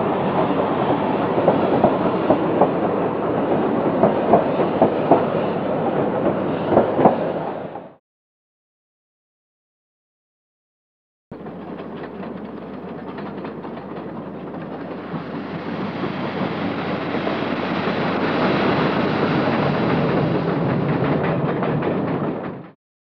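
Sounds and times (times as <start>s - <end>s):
train rushing noise: 0.0s - 8.0s, 11.4s - 22.8s
wheels clicking over rail joints: 11.4s - 18.5s, 19.3s - 22.8s.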